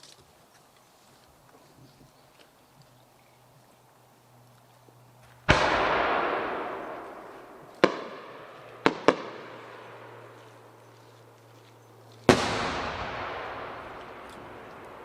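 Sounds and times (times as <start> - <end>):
firework booms and bangs: 5.5 - 10.2, 12.3 - 15.0.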